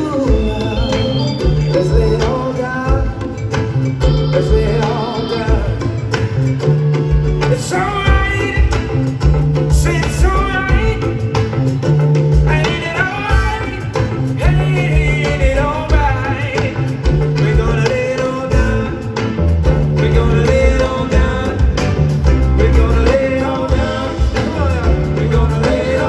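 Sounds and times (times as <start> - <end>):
pitch-bending melodic lead: 0.0 - 8.9
bass line: 0.0 - 26.0
drums: 0.0 - 26.0.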